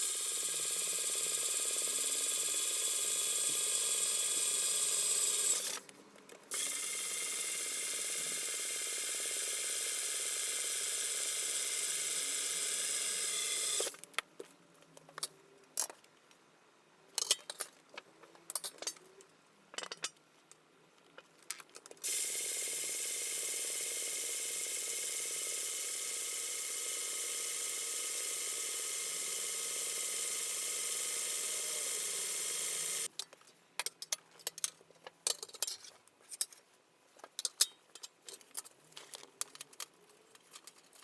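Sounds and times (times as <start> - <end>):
electric power tool whining: 0.0 - 5.8, 6.5 - 13.9, 22.0 - 33.1
clicks and taps of metal parts: 17.2 - 17.7, 19.7 - 20.6, 33.2 - 36.6, 37.2 - 41.0.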